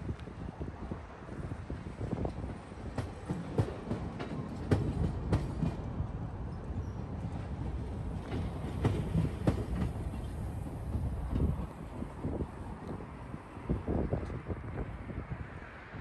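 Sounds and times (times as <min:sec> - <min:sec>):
train cars rumbling past: 0:00.8 - 0:16.0
wheels clunking over rail joints: 0:06.8 - 0:12.0.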